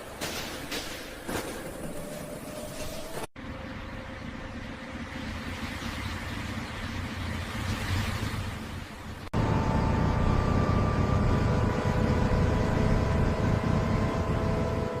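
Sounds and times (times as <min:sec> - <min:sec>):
hum of steady tones: 0:01.4 - 0:15.0
low mechanical rumble: 0:08.5 - 0:15.0.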